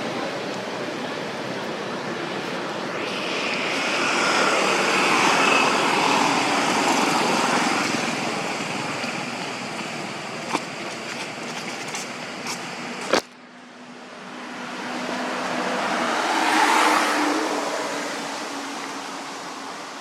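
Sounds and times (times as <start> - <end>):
passing vehicle engine: 2.3 - 10.4, 13.8 - 20.0.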